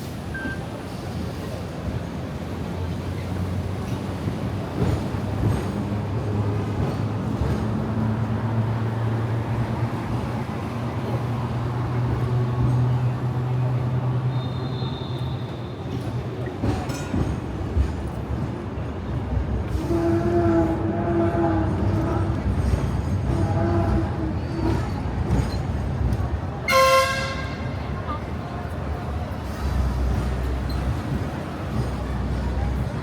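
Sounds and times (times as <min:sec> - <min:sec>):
wheel and track rumble: 0:00.0 - 0:33.0
tram motor hum: 0:15.9 - 0:33.0.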